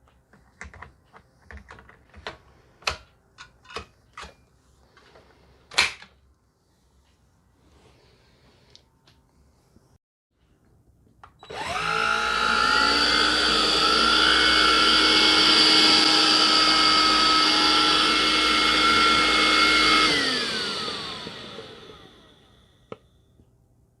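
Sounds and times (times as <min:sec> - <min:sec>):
cordless vacuum motor whining: 0:11.4 - 0:23.0.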